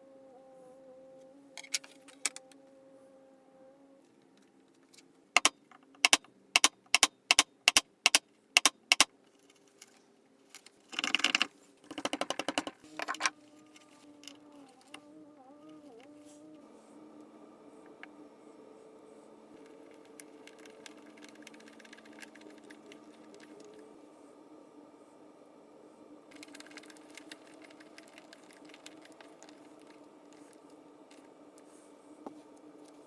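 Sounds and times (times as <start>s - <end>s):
rattle of small clicks: 4.8s - 15.0s, 19.6s - 23.8s, 26.3s - 31.3s.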